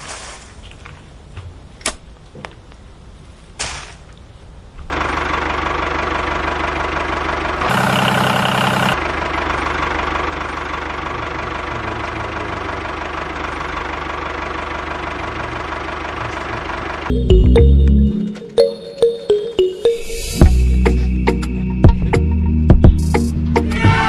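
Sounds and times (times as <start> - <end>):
engine-like running sound: 4.8 - 18.0.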